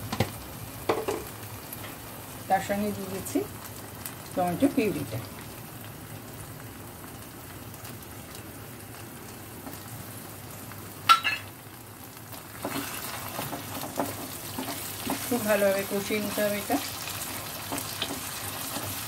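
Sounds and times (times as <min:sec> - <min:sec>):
paste sizzling in oil: 0:11.2 - 0:19.0.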